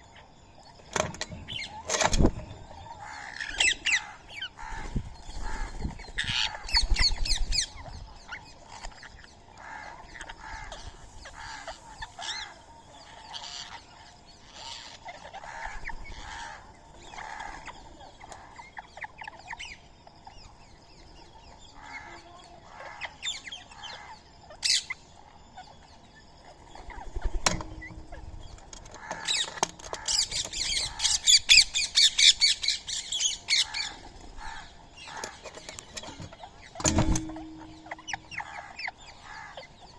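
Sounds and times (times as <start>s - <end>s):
birds squawking and calling: 0.0s - 39.9s.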